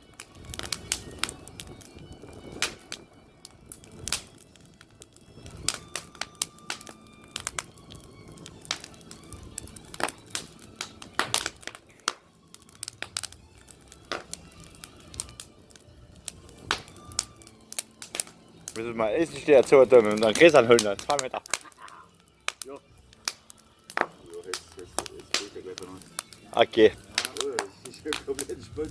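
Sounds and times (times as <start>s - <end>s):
wood fire crackling: 0.0s - 28.9s
sharp pops: 0.4s - 3.1s, 3.7s - 28.5s.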